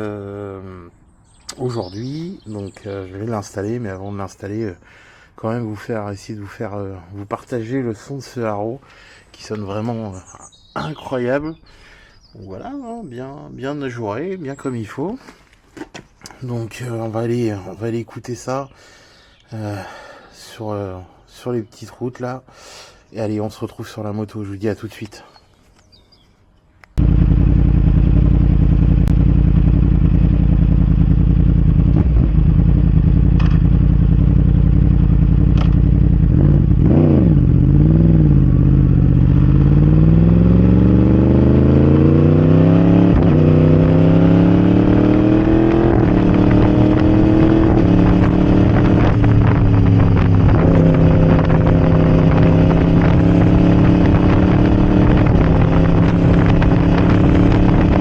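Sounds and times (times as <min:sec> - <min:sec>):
motorcycle engine accelerating: 0:27.0 - 0:58.0.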